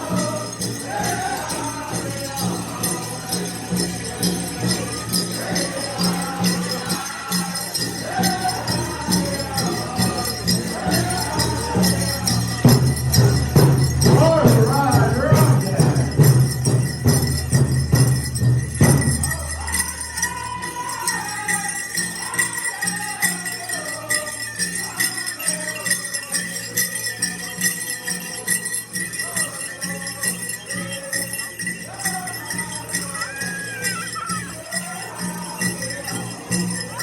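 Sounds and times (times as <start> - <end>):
steady drumbeats: 0.0 - 25.1
jingling: 0.0 - 37.0
people singing: 0.0 - 37.0
scattered voices: 0.0 - 37.0.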